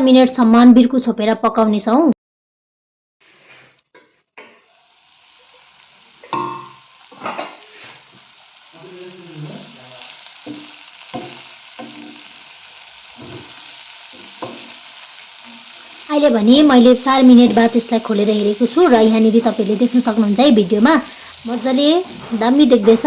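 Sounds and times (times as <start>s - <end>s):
food sizzling in a pan: 4.4s - 23.0s
spoon clinking and scraping pan: 6.2s - 8.0s, 10.4s - 16.0s.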